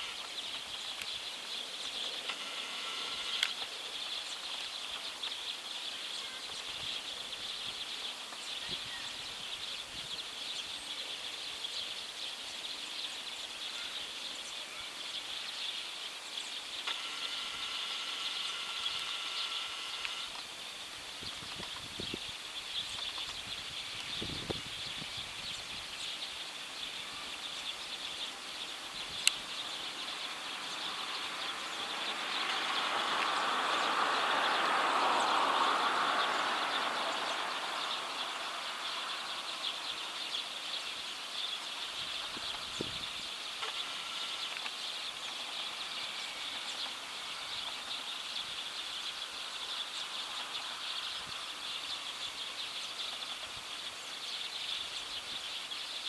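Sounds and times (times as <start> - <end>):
sparrows chirping: 0.0 - 56.0
vehicle passing: 30.0 - 40.2.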